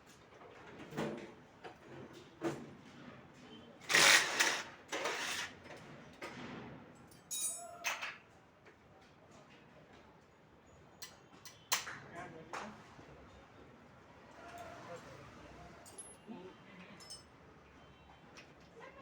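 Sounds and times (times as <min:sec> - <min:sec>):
rattling scrape: 0:03.9 - 0:05.6.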